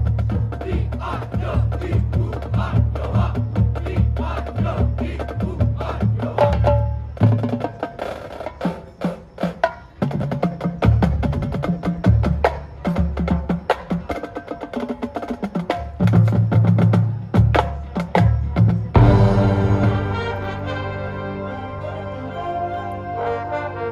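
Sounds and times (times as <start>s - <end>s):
bass drum hits: 19.0s - 21.0s.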